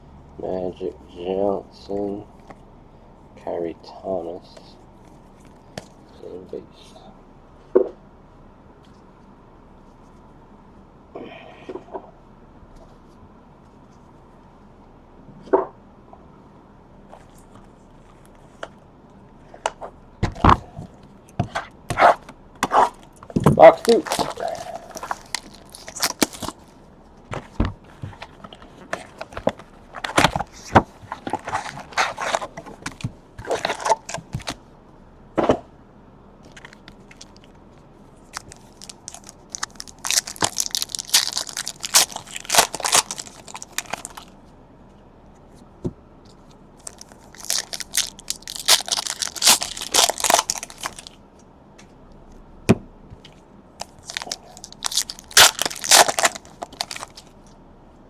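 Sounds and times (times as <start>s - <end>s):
plastic wrapping crinkling and tearing: 23.6s - 26.7s, 27.4s - 34.6s, 38.2s - 44.3s, 46.8s - 51.2s, 53.8s - 57.3s.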